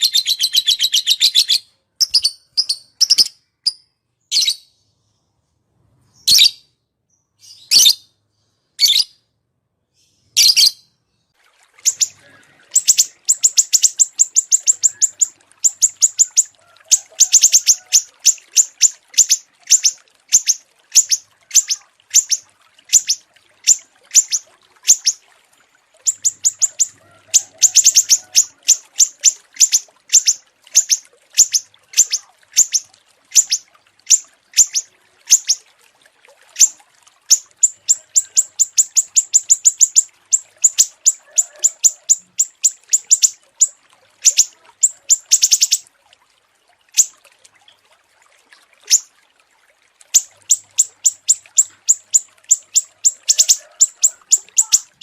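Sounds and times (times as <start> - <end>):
songbirds chirping: 9.9 - 25.2, 25.8 - 35.6, 36.6 - 45.9, 50.2 - 55.0.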